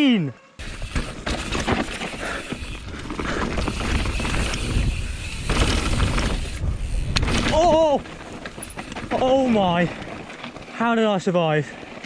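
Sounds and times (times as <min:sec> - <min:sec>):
bike knocking and rattling: 0:00.6 - 0:12.0
tyres rumbling on rough trail: 0:00.6 - 0:12.0
wind buffeting microphone: 0:01.8 - 0:10.4.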